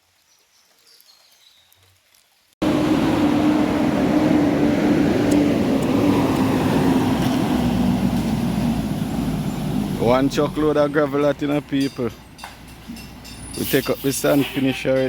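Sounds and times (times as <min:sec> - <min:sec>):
heavy vehicle engine running: 0:02.6 - 0:14.0.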